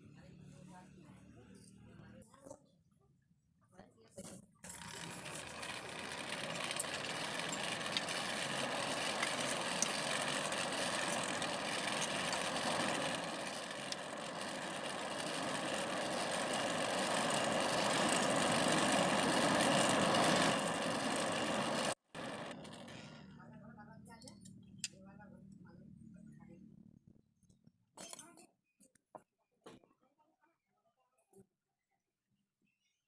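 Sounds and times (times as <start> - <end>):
machine motor hum: 4.7 - 23.2.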